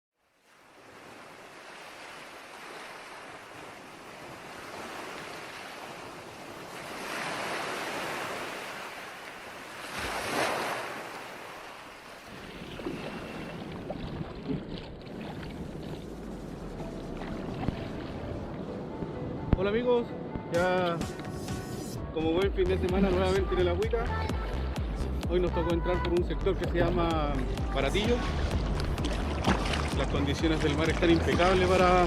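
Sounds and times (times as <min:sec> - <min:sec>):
ocean surf washing ashore: 0:00.4 - 0:18.9
wind buffeting microphone: 0:12.3 - 0:19.6.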